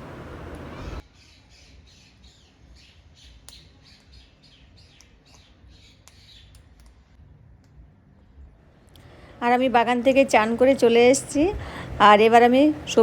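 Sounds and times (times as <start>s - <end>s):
faint bird chirping: 0.0s - 6.8s.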